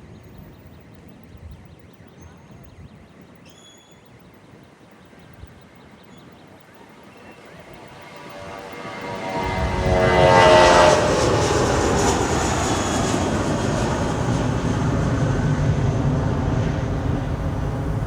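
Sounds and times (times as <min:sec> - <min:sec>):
jet engines at take-off: 0:00.0 - 0:18.0.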